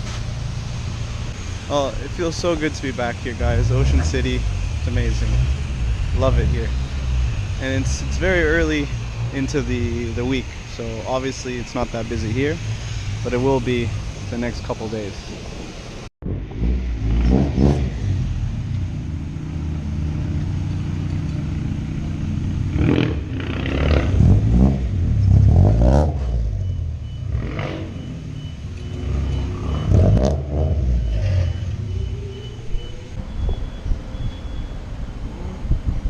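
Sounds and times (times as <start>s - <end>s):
car engine idling: 0.0s - 16.1s, 18.3s - 25.6s.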